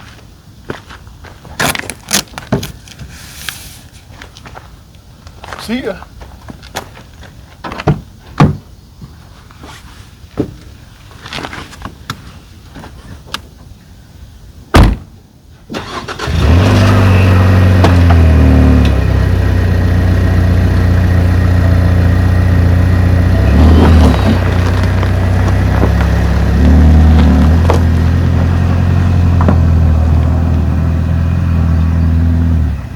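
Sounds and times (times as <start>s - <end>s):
car door shutting: 14.8s - 15.1s
car engine starting and running: 15.7s - 32.9s.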